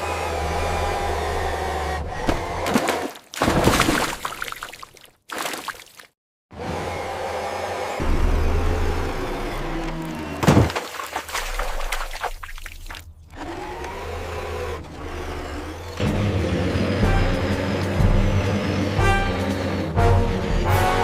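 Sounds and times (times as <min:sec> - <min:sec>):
engine running: 0:06.5 - 0:10.7, 0:13.2 - 0:21.0.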